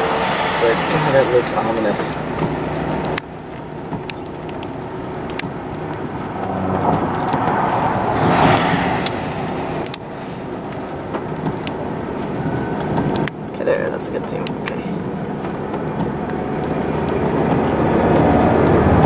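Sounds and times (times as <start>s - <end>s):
vehicle low rumble: 0.0s - 19.0s
scattered clicks: 2.4s - 6.0s
whoosh: 6.3s - 10.7s.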